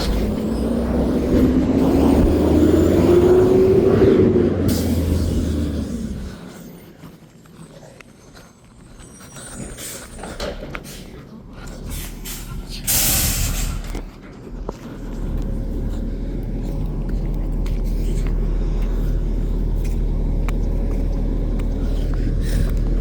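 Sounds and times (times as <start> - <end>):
air brakes hissing: 0.0 - 6.9, 9.1 - 14.1
truck engine droning: 0.0 - 23.0.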